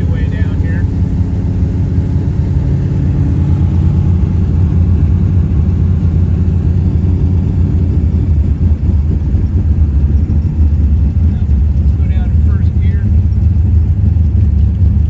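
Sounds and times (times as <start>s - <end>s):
car engine with deep exhaust: 0.0s - 15.0s.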